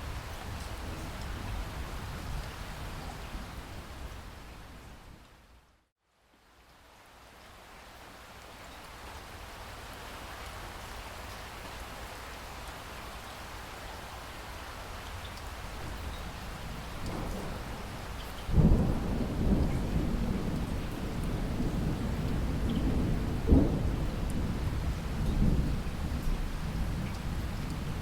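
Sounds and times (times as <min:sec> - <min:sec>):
loud thunder rumble: 0:17.1 - 0:27.0.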